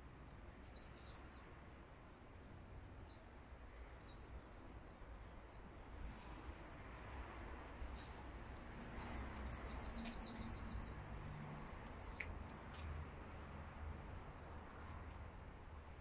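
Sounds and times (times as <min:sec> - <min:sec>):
birds chirping: 0:07.8 - 0:11.0, 0:12.0 - 0:12.4.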